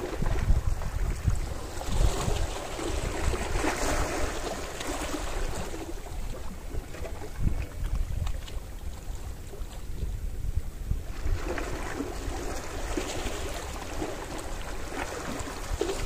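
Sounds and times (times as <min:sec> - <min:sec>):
sea waves washing ashore: 0:00.0 - 0:07.4, 0:11.0 - 0:16.0
wind rumble on microphone: 0:00.0 - 0:16.0.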